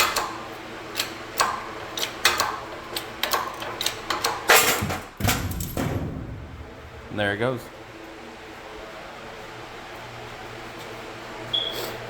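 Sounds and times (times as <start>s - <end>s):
loud bang of bushing breaking: 4.6s - 7.2s
heavy thump: 4.8s - 7.8s.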